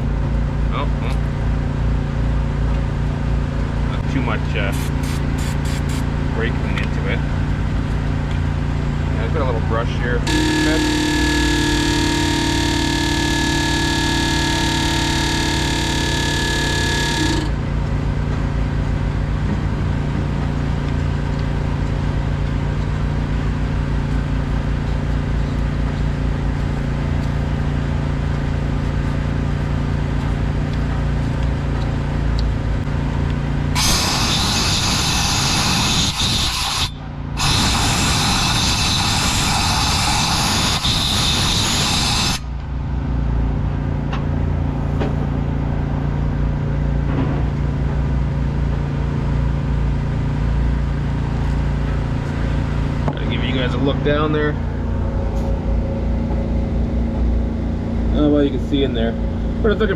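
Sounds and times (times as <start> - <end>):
diesel engine idling: 0.0 - 35.4, 42.3 - 59.9
hissing spray bursts: 4.7 - 6.0.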